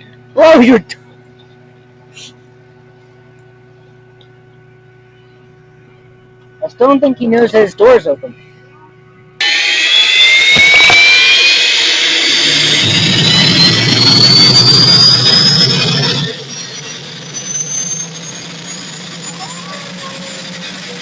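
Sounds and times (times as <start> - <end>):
turbine engine whining: 9.4 - 21.0.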